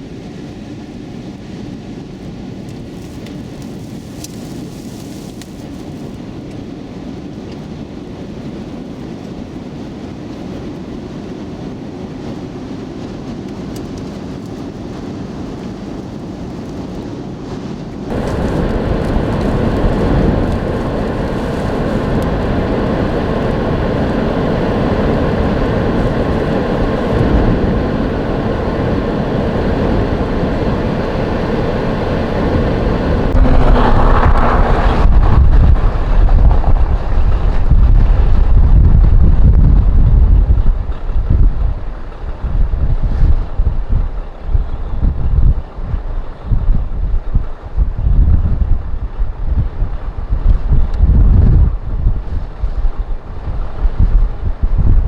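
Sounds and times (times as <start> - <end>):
vehicle road noise: 18.1 - 38.8
strong wind noise: 18.1 - 55.0.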